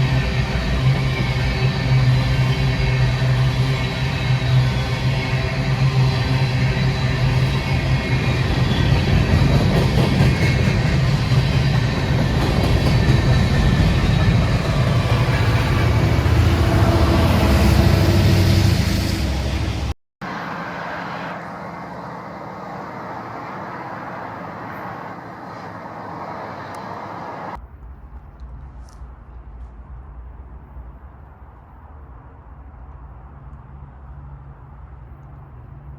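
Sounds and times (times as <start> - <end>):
diesel freight train passing: 0.0 - 28.2
train rumble: 0.0 - 35.9.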